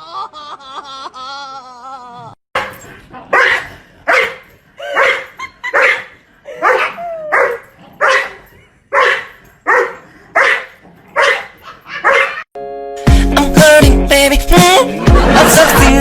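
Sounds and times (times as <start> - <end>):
dog barking: 2.6 - 12.5.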